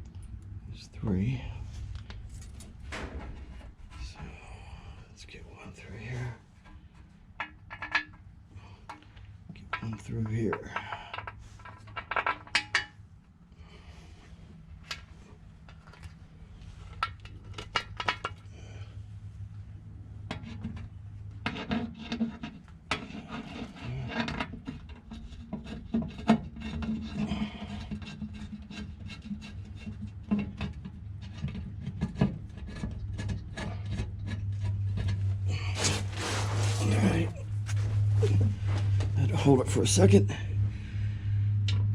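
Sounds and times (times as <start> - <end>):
low steady hum: 0.0 - 41.9
metal clicks and scraping: 6.6 - 13.0.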